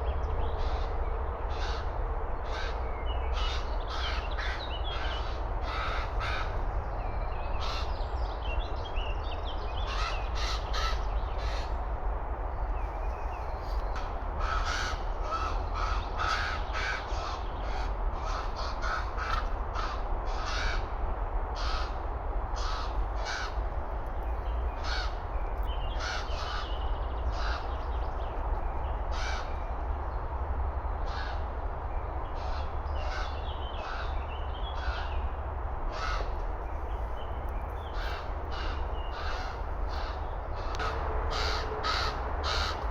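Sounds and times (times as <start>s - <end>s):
ravens calling: 0.6s - 6.6s, 7.5s - 8.0s, 9.8s - 11.9s, 14.0s - 21.0s, 21.6s - 23.7s, 24.7s - 28.0s, 28.9s - 29.7s, 31.0s - 31.6s, 32.2s - 36.6s, 37.8s - 42.9s.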